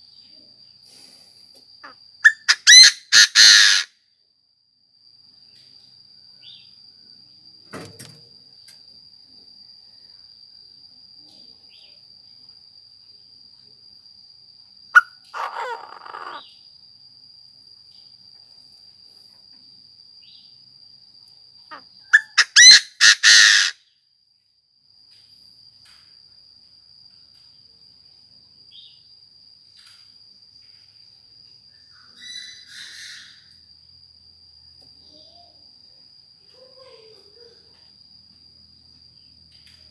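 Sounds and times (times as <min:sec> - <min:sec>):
francolin calling: 0:01.8 - 0:03.9, 0:15.0 - 0:16.7, 0:21.7 - 0:23.8, 0:31.7 - 0:33.6.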